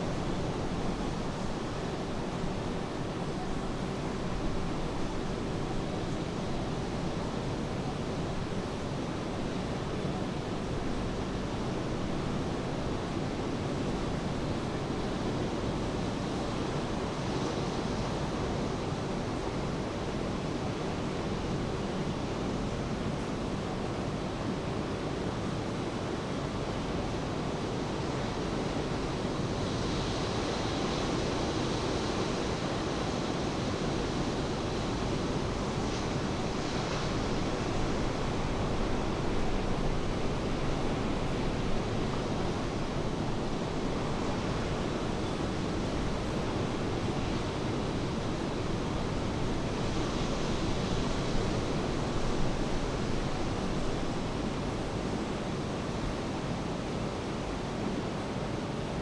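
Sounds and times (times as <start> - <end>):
ocean surf washing: 29.6 - 57.8.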